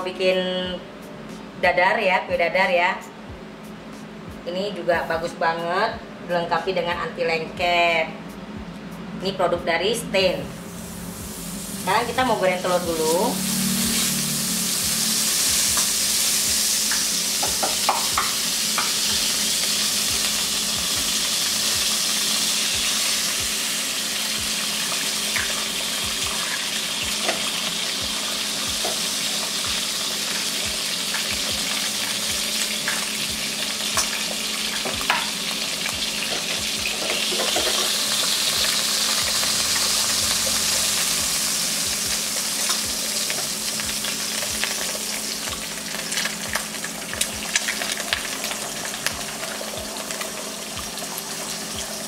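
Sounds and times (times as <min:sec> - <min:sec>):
butter sizzling in a wok: 0:10.7 - 0:52.0.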